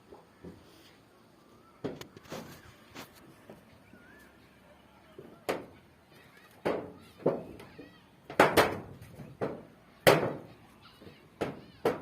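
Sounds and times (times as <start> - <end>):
faint high chirping: 3.6 - 5.1.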